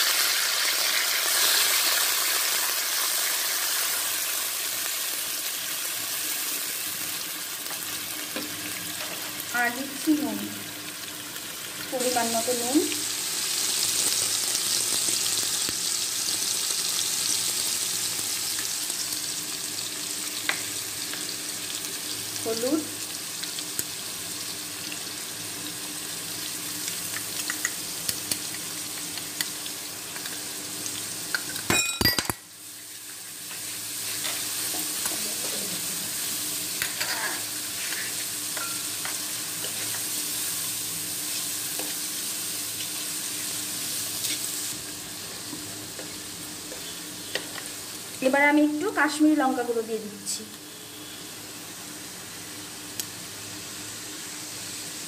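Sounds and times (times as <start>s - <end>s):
food sizzling in hot oil: 0.0s - 55.0s
wooden spatula scraping a wok: 36.8s - 38.4s.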